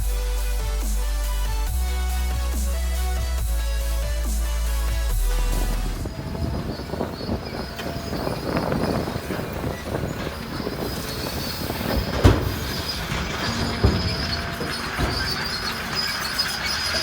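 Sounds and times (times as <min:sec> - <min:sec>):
crawler tracks clattering: 0:05.1 - 0:17.0.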